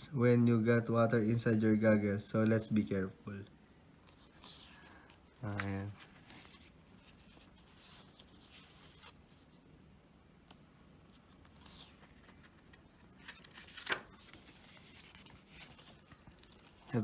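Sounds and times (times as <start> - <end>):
paper pages rustling: 4.0 - 9.7, 10.4 - 17.0.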